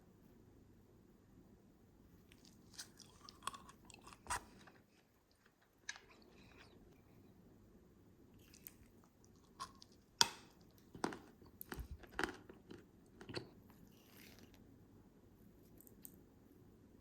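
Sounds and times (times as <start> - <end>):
chewing crunchy candy: 2.3 - 7.0, 8.4 - 14.6.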